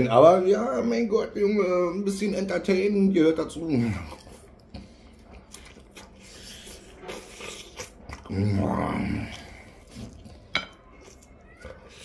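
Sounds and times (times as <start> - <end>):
man chewing crunchy food: 3.8 - 12.0
low hummed vocal sound: 8.1 - 10.4.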